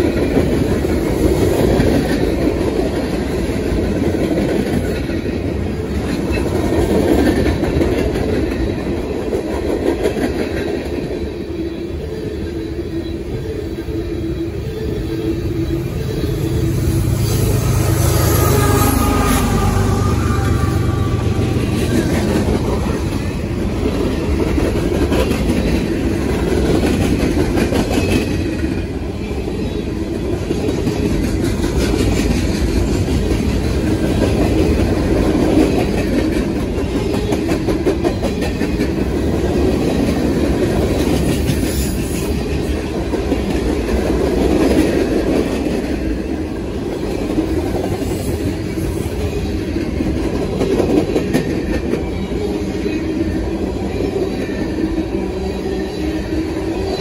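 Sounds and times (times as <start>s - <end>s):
train wheels clacking over rail joints: 0.0s - 11.2s, 18.2s - 29.4s, 30.1s - 52.5s.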